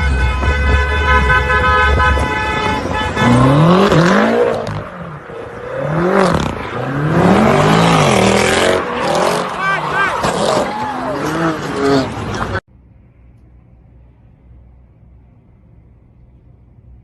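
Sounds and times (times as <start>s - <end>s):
car horn blast: 0.0s - 4.8s
low vehicle rumble: 0.0s - 17.0s
engine revving: 2.6s - 12.6s.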